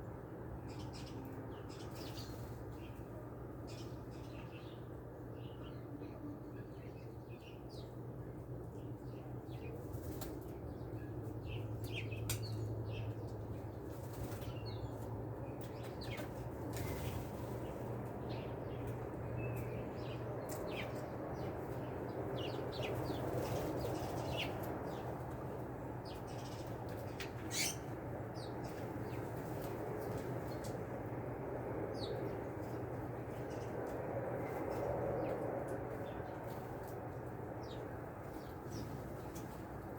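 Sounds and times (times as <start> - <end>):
low background hum: 0.0 - 39.9.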